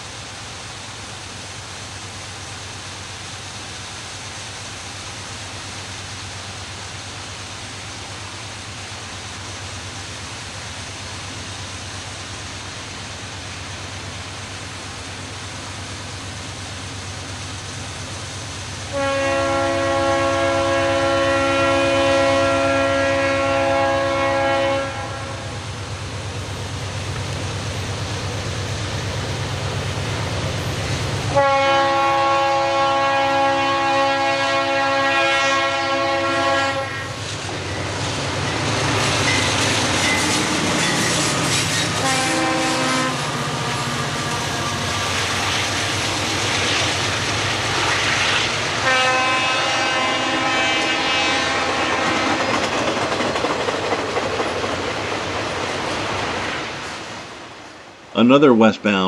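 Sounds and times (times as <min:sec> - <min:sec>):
diesel engines rumbling: 0:06.4 - 0:50.8
locomotive air horn blasts: 0:18.9 - 0:25.6, 0:31.3 - 0:37.2, 0:41.7 - 0:45.2, 0:48.8 - 0:52.4
wheels clattering over rail joints: 0:51.9 - 0:56.9.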